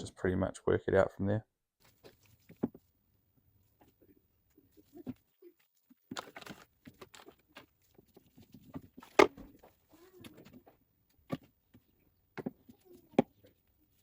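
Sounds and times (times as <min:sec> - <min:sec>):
rubbing and clicking handling sounds: 0:01.8 - 0:02.9, 0:03.6 - 0:11.9.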